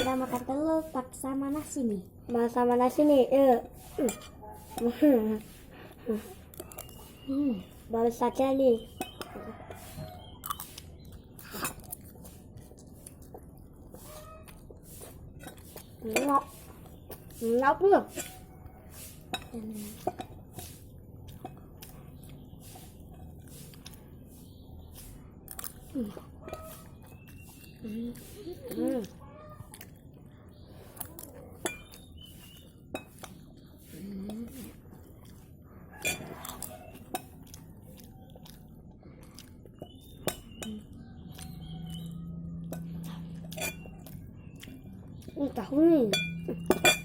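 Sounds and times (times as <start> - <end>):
person chewing food: 3.6 - 47.0
cutlery clinking on a plate: 36.0 - 37.4, 43.5 - 43.9, 46.1 - 47.0.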